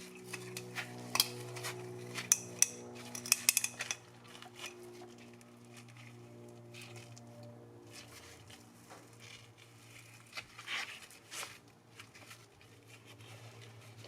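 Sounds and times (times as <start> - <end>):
small tools clicking and clinking: 0.0 - 6.0
steady low hum: 0.0 - 10.5.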